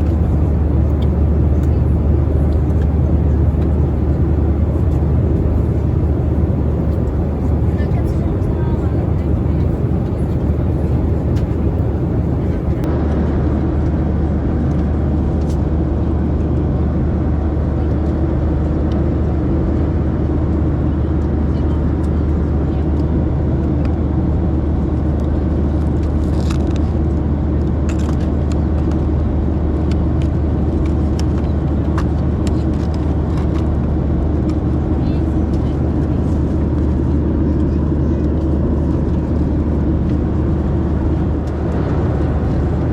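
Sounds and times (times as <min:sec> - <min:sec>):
aircraft cabin engine drone: 0:00.0 - 0:13.0, 0:30.2 - 0:42.9.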